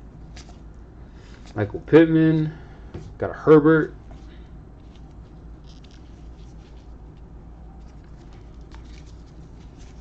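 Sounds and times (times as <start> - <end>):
trading cards flipped by hand: 0.3 - 0.6, 4.8 - 10.0.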